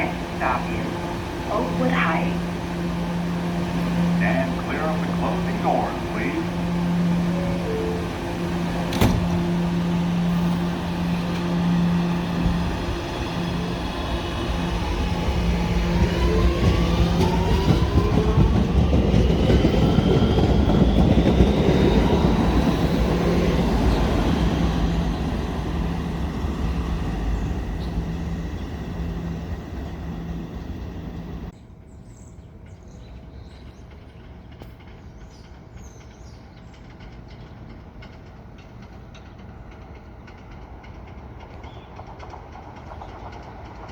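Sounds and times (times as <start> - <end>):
electric train motor whine: 0.0 - 31.5
wheel and rail noise: 0.0 - 31.6, 32.6 - 43.9.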